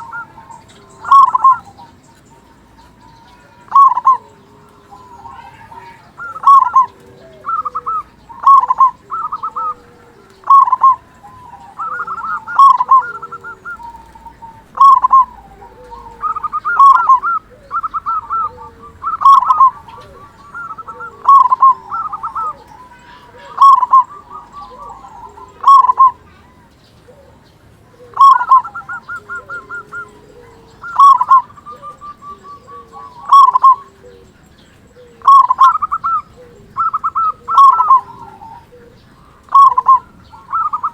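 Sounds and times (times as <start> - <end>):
dove cooing: 0.0 - 40.9
fainter lower coos: 0.0 - 40.9
quick bird trill: 10.4 - 26.3, 28.1 - 34.0, 35.1 - 38.5, 39.3 - 40.9.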